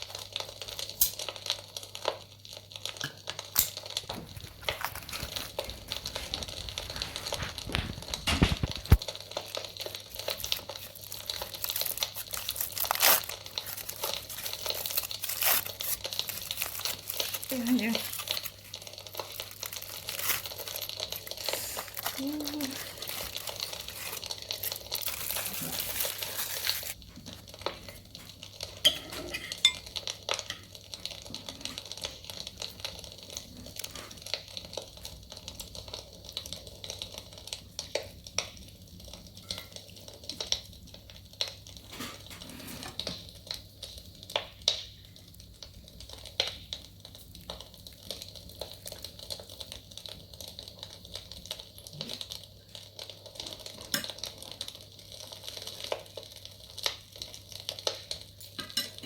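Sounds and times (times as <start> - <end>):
cutlery and dishes clinking: 28.8 - 29.9, 58.4 - 59.0.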